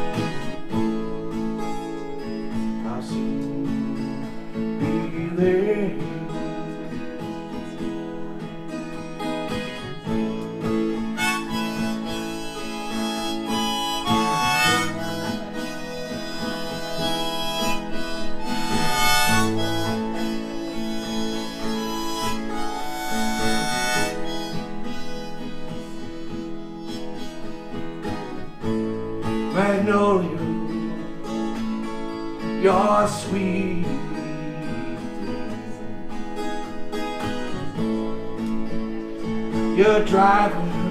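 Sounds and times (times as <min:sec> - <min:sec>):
harmonica bending notes: 0:00.0 - 0:02.8, 0:06.2 - 0:29.9
acoustic guitar strumming: 0:00.0 - 0:40.9.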